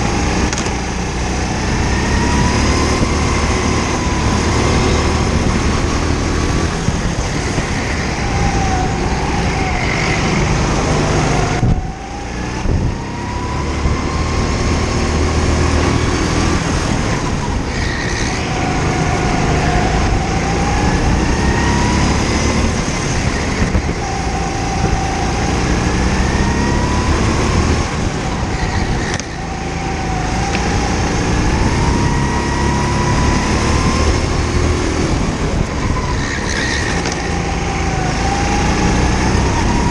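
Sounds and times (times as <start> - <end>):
go-kart engine accelerating: 0.0 - 39.9.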